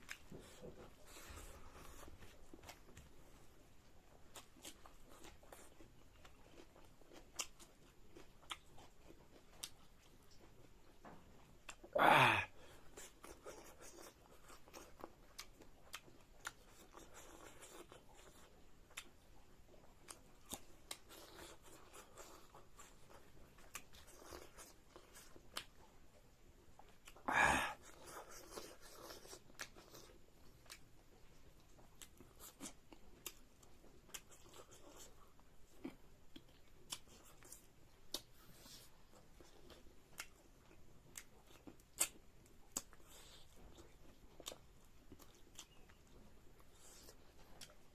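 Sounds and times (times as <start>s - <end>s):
chewing with small crunches: 0.0s - 47.9s
short loud vocal sound: 12.0s - 12.5s.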